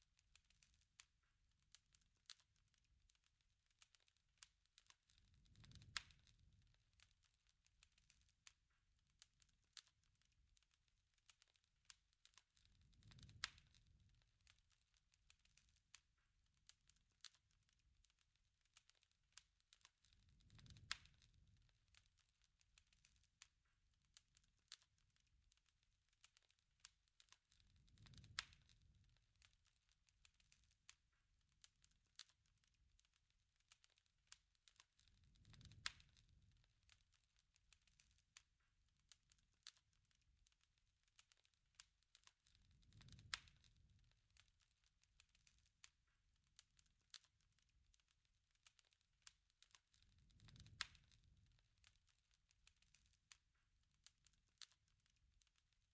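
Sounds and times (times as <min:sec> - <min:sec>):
campfire pops and snaps: 0:00.1 - 0:55.9
soft rush of flame: 0:04.8 - 0:08.2, 0:12.3 - 0:15.6, 0:19.8 - 0:23.2, 0:27.2 - 0:32.9, 0:34.7 - 0:38.4, 0:42.2 - 0:45.6, 0:49.6 - 0:52.0.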